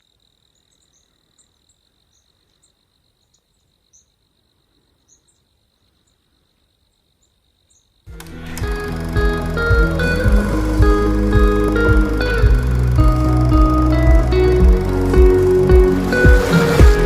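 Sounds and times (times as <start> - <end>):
insect trill: 0.0 - 14.0
background music: 8.1 - 17.0.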